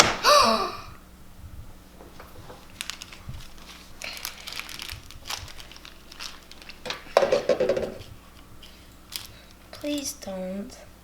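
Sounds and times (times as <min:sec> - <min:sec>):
packets crinkling and lids clicking: 0:02.0 - 0:10.0.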